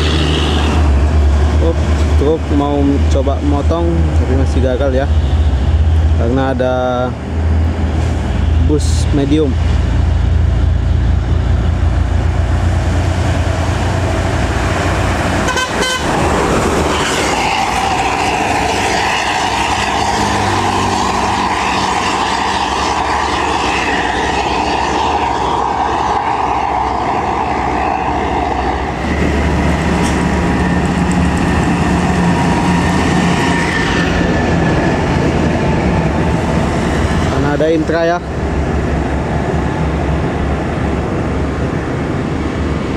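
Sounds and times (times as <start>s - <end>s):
vehicle horn toot: 0.0s - 0.9s, 15.4s - 16.2s
heavy vehicles passing: 0.0s - 42.9s.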